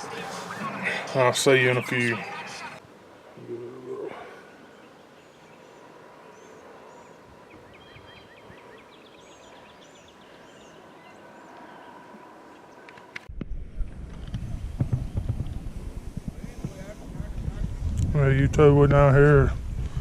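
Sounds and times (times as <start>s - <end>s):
birds chirping: 0.0s - 13.6s
faint outdoor ambience: 0.0s - 20.0s.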